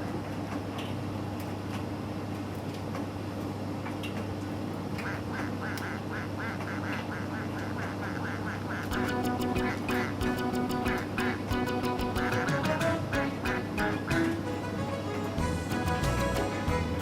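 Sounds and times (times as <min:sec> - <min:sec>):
tumble dryer motor hum: 0:15.3 - 0:17.0.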